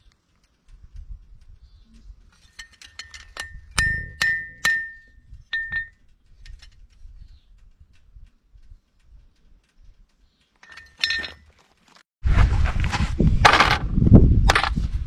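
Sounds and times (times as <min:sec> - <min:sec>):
hammer striking horseshoe: 0:02.5 - 0:05.9, 0:10.6 - 0:11.4.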